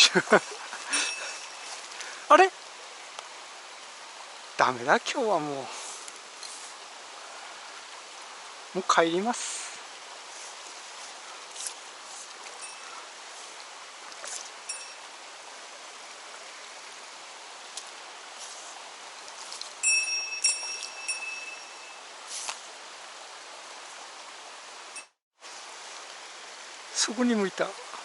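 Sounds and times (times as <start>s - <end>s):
mountain stream running: 0.0s - 28.0s
high ringing jingle: 0.9s - 1.8s, 12.6s - 13.0s, 14.7s - 15.1s, 19.8s - 22.1s.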